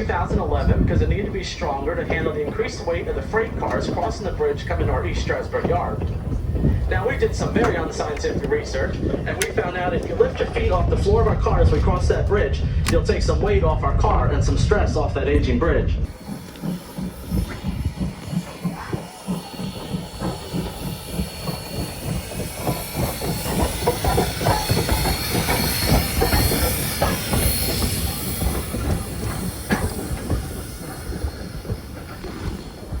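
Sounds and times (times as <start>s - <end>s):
steady steam hiss: 0.0s - 12.8s, 16.1s - 33.0s
train wheels clattering over rails: 0.0s - 13.8s, 16.0s - 33.0s
thin high whine: 16.1s - 33.0s.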